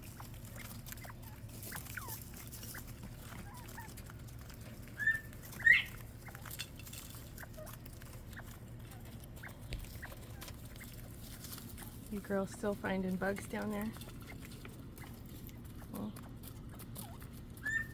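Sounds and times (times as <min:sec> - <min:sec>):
quail peeping and chirping: 0:00.0 - 0:17.9
loud rising quail calls: 0:05.0 - 0:06.4.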